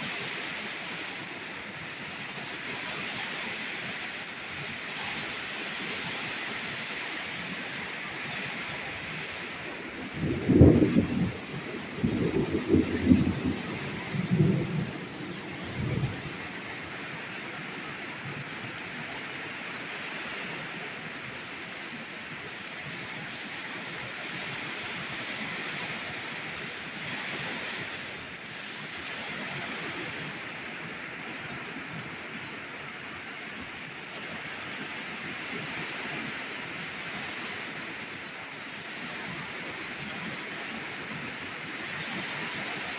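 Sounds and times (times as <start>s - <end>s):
heavy rain falling: 0.0s - 42.9s
thunder rumbling: 9.3s - 18.0s.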